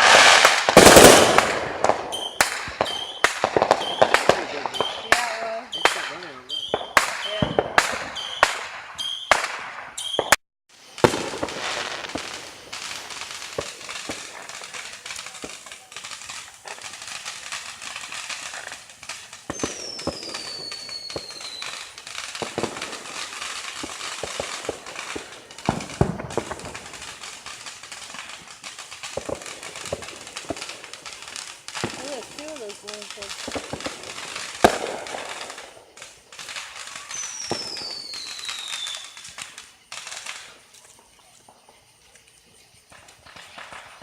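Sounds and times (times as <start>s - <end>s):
fireworks bangs and pops: 0.0s - 44.0s
fireworks crackling: 0.0s - 44.0s
falling whistle: 2.1s - 10.4s, 19.5s - 21.9s, 36.8s - 39.4s.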